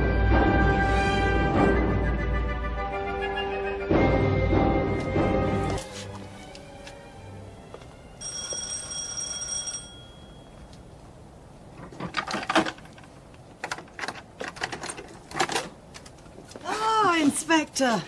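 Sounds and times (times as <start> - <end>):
electric doorbell ringing: 8.2 - 10.9
sharp clicks and knocks: 11.8 - 16.4.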